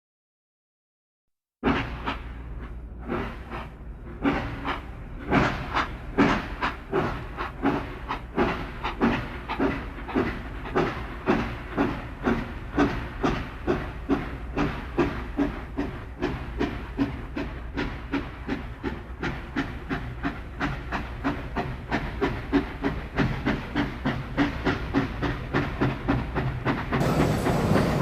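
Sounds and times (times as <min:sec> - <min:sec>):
steam locomotive exhaust chuffing: 0:01.6 - 0:28.0.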